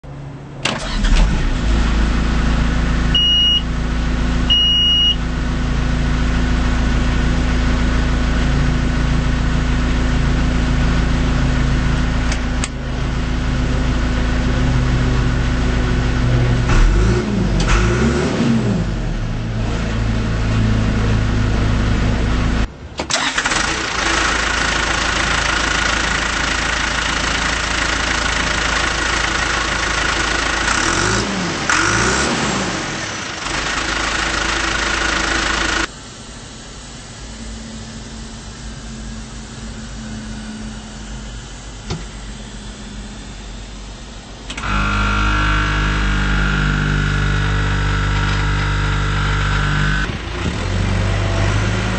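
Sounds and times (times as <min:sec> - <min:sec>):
diesel engine idling and revving: 0:00.0 - 0:51.9
short high beeps: 0:03.2 - 0:03.6, 0:04.5 - 0:05.2.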